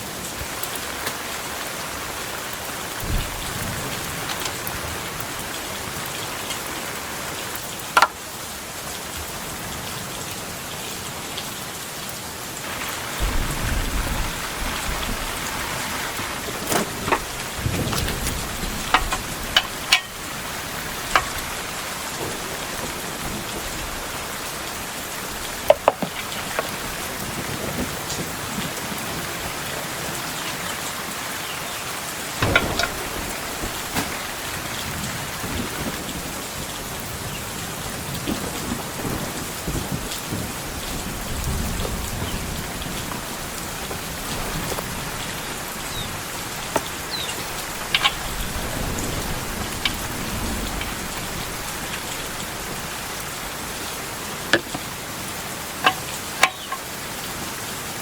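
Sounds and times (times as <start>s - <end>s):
heavy rain falling: 0.0s - 58.0s
sharp knocks and clinks: 18.9s - 20.2s, 32.4s - 34.3s.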